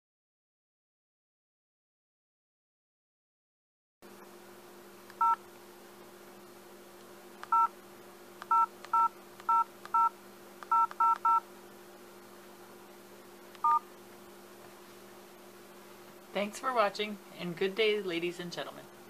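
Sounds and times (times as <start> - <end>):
steady low hum: 4.0 - 19.0
phone keypad beeps: 5.2 - 5.4, 7.5 - 7.7, 8.5 - 10.1, 10.7 - 11.4, 13.6 - 13.8.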